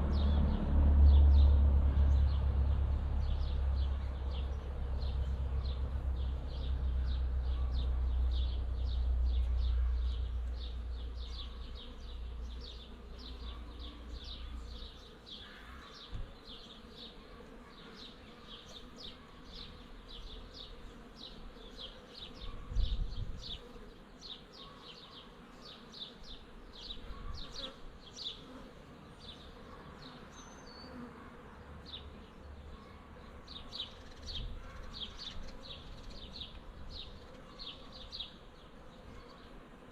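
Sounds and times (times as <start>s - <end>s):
wind rumbling on microphone: 22.6s - 23.6s.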